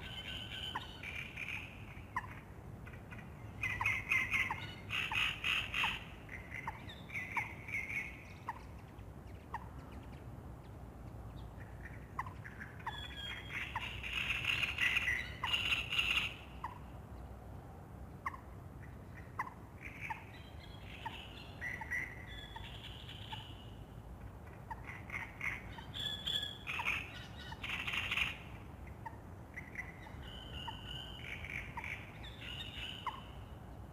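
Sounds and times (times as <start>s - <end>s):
birdsong: 0.0s - 17.3s, 18.2s - 33.9s.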